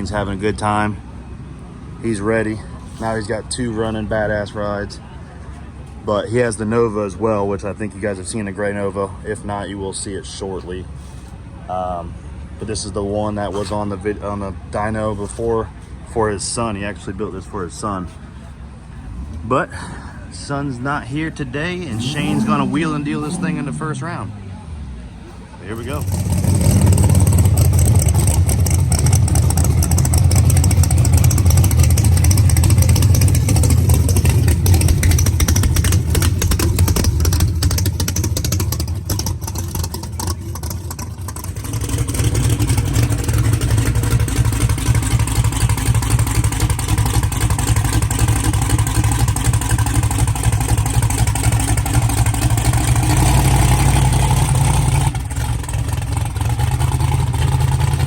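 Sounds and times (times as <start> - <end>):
truck engine running loud: 12.8 - 58.0.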